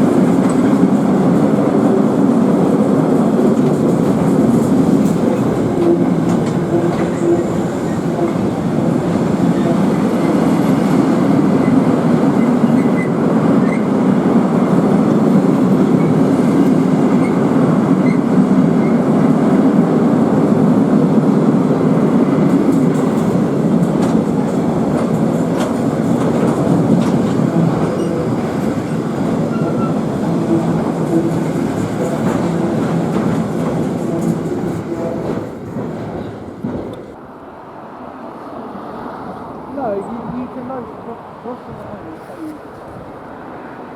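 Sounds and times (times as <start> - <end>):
train wheels rumbling on rails: 0.0 - 37.2
wheels clicking on rails: 22.3 - 37.1.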